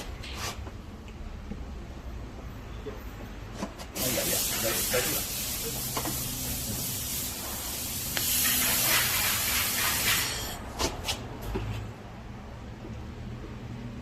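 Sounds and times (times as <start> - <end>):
laser welder spraying hiss: 4.0 - 10.6.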